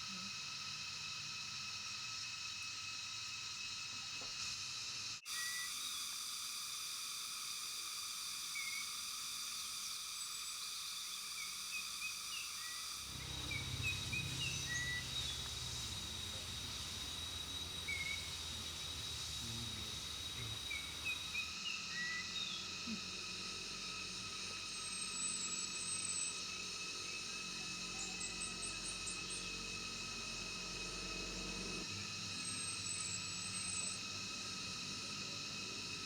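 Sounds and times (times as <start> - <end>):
buzz of tropical insects: 0.0 - 36.0
bird call notes: 13.1 - 21.5.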